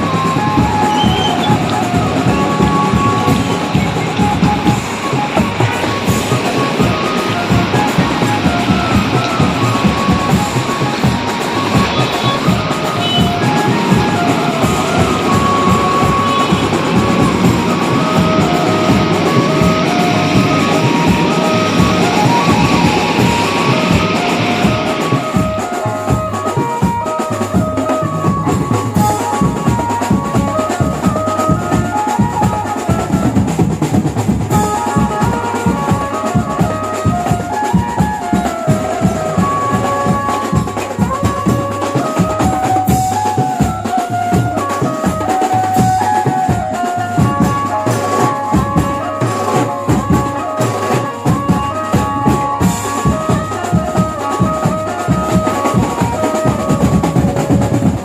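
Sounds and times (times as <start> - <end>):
band melody: 0.0 - 58.0
fast busy drumming: 0.0 - 58.0.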